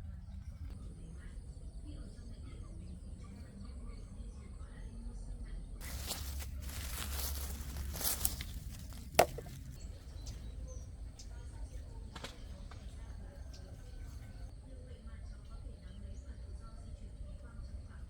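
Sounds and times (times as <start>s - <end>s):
loud rustling and crackling: 5.8s - 9.8s.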